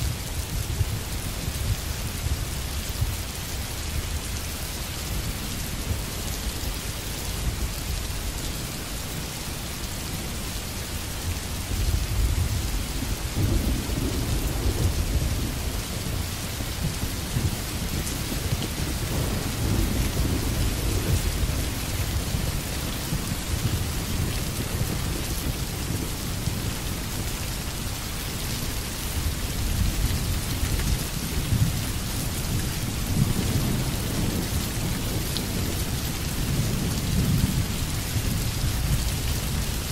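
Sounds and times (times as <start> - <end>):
rain hissing: 0.0 - 39.9
thunder rumbling: 11.8 - 26.6, 31.1 - 39.9.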